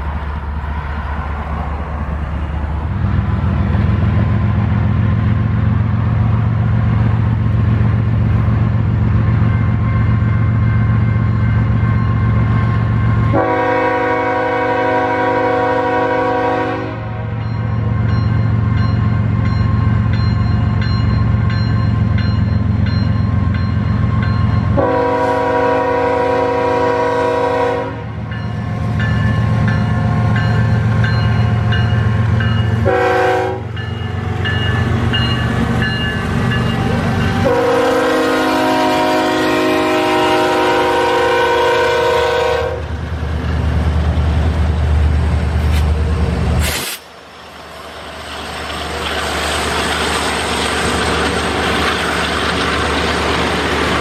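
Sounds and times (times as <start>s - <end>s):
locomotive engine rumble: 0.0s - 54.0s
train cars rolling wheel noise: 0.0s - 54.0s
train air horn blasts: 13.3s - 17.3s, 24.8s - 28.2s, 32.8s - 33.8s, 36.8s - 42.9s.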